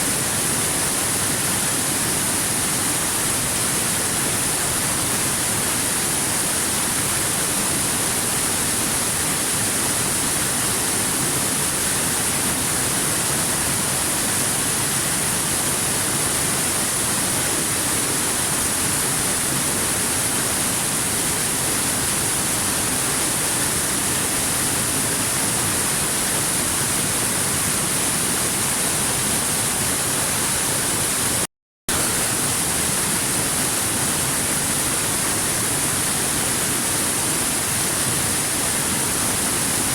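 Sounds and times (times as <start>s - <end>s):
waterfall rushing: 9.0s - 39.9s.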